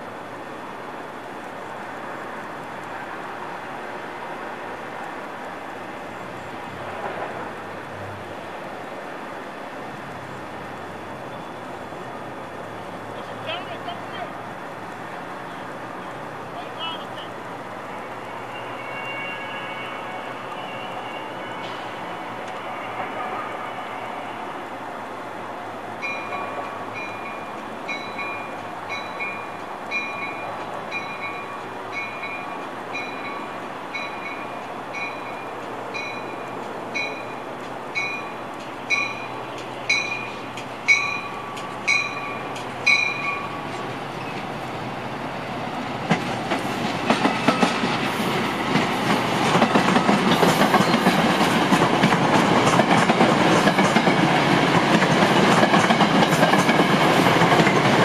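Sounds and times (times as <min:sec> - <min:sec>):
train wheels clacking over rail joints: 0:46.0 - 0:58.0.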